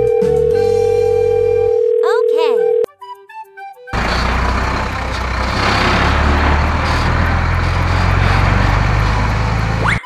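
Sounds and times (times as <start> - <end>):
cartoon engine sound effect: 9.8 - 10.0.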